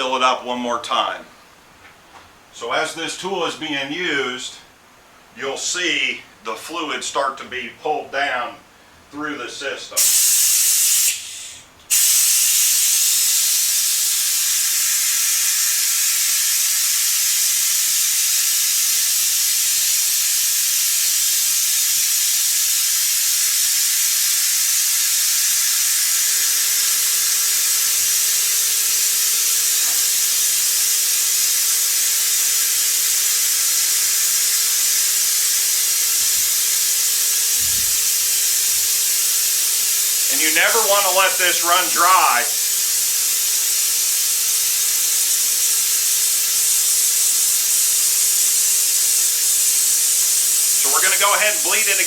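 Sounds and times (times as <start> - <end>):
faint steady hum: 0.0 - 10.0
vacuum brake bleeder hissing: 10.0 - 52.0.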